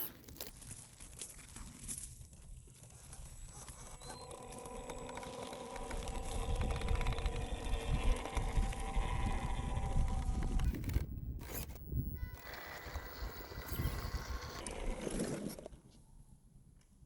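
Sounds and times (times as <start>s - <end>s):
wheels crackling on rough ground: 0.0s - 15.8s
toy truck electric motor whining: 3.4s - 15.7s.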